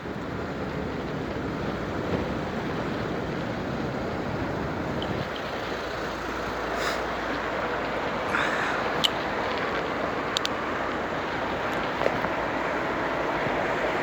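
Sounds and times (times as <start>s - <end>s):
bicycle tyre and road noise: 0.0s - 14.0s
wind over microphone: 0.0s - 14.0s.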